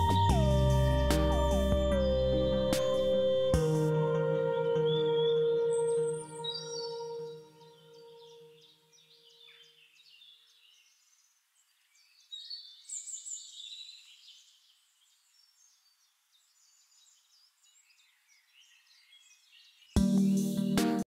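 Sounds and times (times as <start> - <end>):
soft ambient music chord: 0.0 - 8.9
small birds chirping: 4.7 - 21.0.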